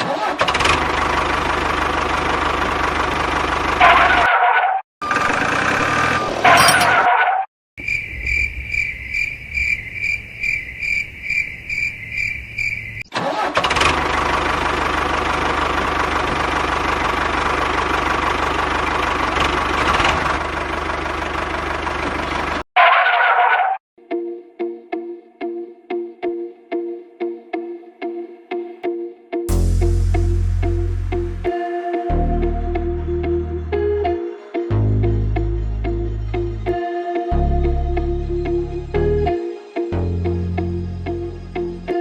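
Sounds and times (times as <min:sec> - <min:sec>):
tractor engine running: 0:00.3 - 0:04.2, 0:13.4 - 0:22.6.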